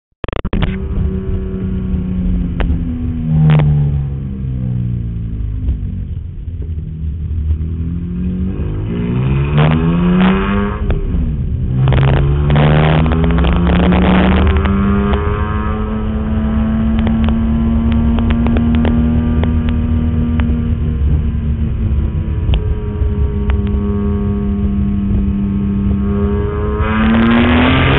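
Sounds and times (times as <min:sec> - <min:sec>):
car engine revving hard: 0:08.2 - 0:20.4, 0:22.4 - 0:27.9.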